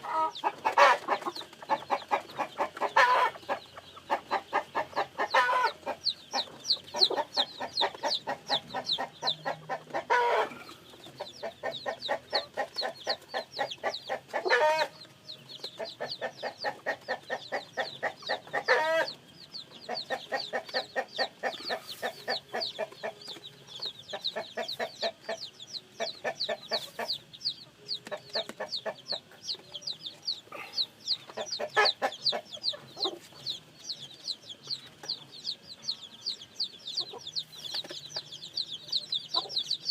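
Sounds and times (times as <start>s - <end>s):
chicks peeping: 0.0s - 39.9s
hen clucking: 0.0s - 39.9s
loud chicken calls: 2.3s - 5.9s, 9.6s - 10.8s, 18.0s - 19.1s.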